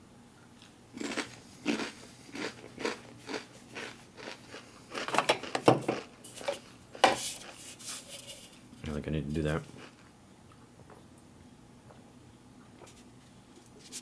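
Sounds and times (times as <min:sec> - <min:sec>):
crispbread crunching and chewing: 0:00.6 - 0:07.7, 0:09.4 - 0:11.0.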